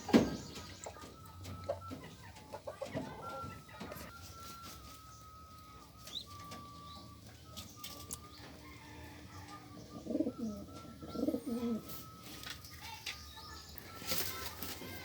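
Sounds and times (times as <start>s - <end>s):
pigeons cooing: 5.6s - 12.2s.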